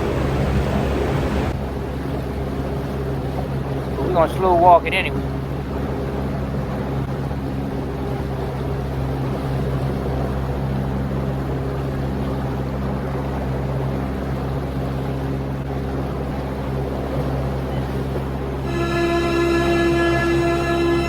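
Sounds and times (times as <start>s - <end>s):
water rushing: 0.0s - 1.5s
boat motor drone: 0.0s - 21.0s.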